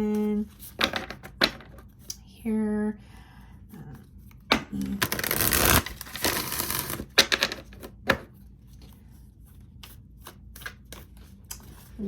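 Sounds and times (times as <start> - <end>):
cards rustling while shuffled: 4.0 - 12.0.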